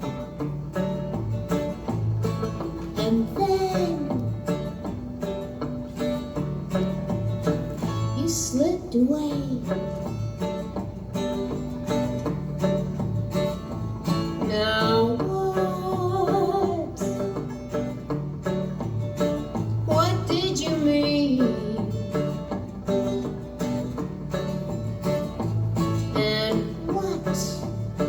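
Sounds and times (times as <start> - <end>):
strummed acoustic guitar: 0.0 - 28.0
person singing: 2.9 - 4.6, 14.4 - 17.3, 19.9 - 22.3, 26.0 - 28.0.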